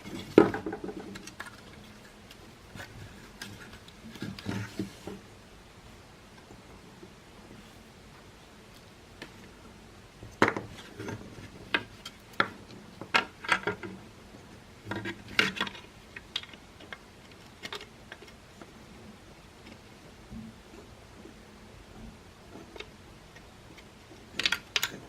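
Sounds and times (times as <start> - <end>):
plastic parts clicking and knocking: 0.0 - 4.9, 10.4 - 14.0, 14.8 - 18.7, 22.5 - 25.0.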